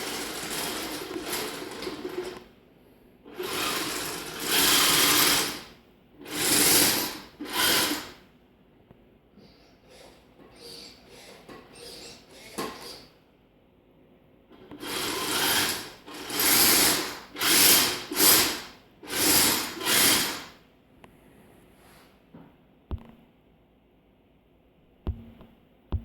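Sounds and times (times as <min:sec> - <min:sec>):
electric motors whirring in bursts: 0:03.3 - 0:05.6, 0:14.8 - 0:20.6.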